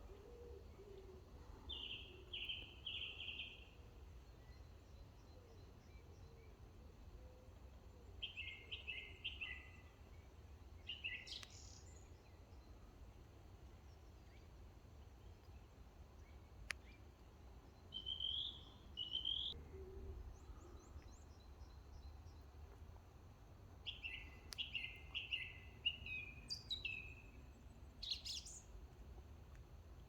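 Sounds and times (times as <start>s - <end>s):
woodland birds singing: 0.0s - 7.4s, 8.0s - 13.0s, 13.6s - 22.7s, 23.8s - 29.0s
low steady background rumble: 11.5s - 30.0s.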